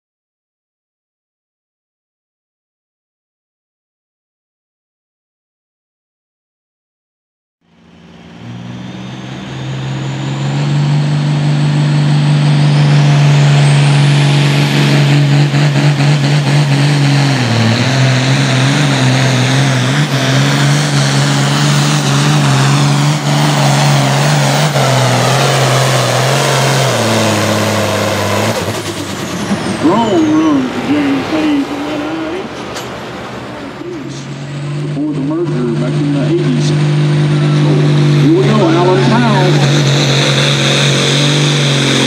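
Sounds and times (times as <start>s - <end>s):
tractor diesel engine under load: 7.6s - 42.0s
turbocharger whistle: 7.7s - 32.4s, 34.1s - 42.0s.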